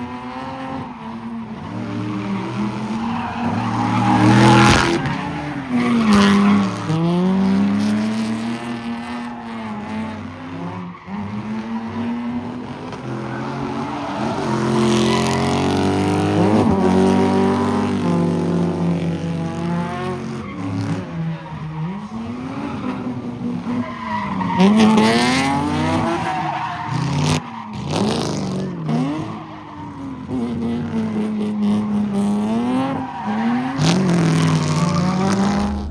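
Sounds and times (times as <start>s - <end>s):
car engine revving: 30.3s - 35.9s.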